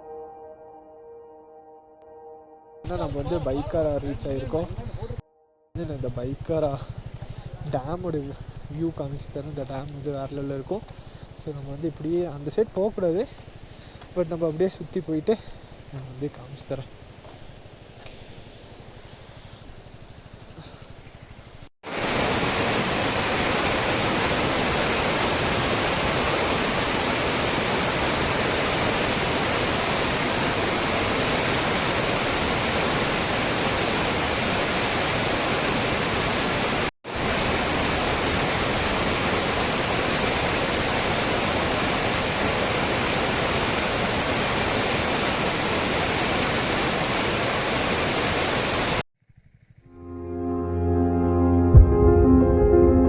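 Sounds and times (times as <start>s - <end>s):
water rushing: 21.8s - 49.0s.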